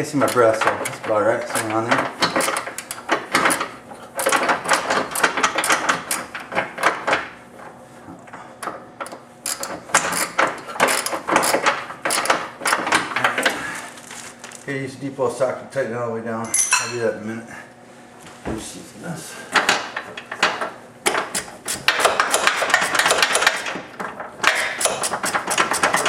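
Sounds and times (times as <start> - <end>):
hand ratchet clicking: 0.2 - 6.3, 8.6 - 12.8, 21.1 - 23.8, 24.4 - 26.0
metal tool clatter: 16.5 - 17.0.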